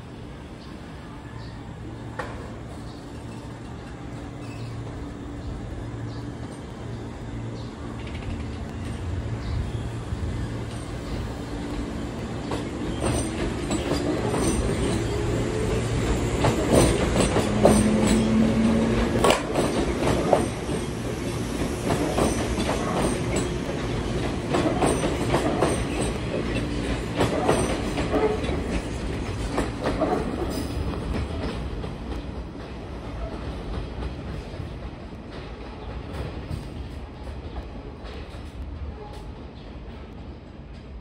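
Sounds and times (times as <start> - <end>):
train wheels clacking over rail joints: 12.4 - 34.7.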